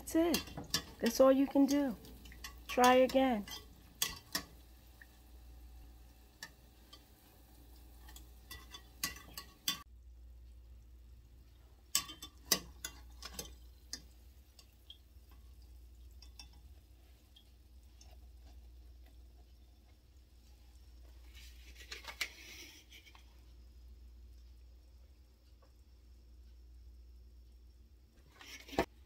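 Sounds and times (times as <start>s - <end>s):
dough frying in oil: 0.0s - 29.0s
faint low hum: 23.0s - 28.4s.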